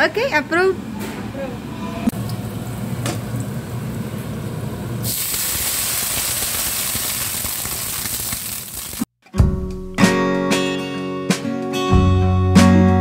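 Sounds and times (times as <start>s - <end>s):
oil sizzling in a wok: 2.2s - 9.1s.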